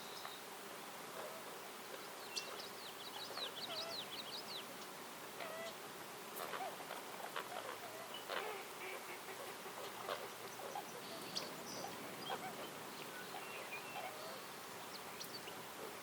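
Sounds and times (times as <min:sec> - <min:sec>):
background hiss: 0:00.0 - 0:16.0
birds chirping: 0:06.4 - 0:16.0.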